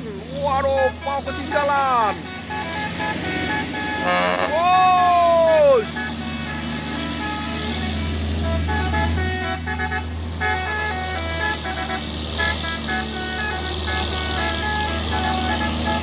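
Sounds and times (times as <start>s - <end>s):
truck engine humming: 0.0s - 16.0s
musical horn playing short notes: 2.1s - 4.9s.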